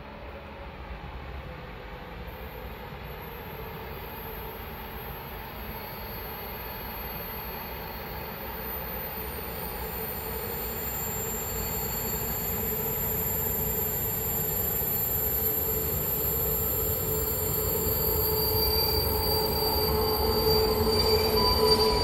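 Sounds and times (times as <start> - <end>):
squealing whine: 3.2 - 22.0
train rumble: 17.6 - 22.0.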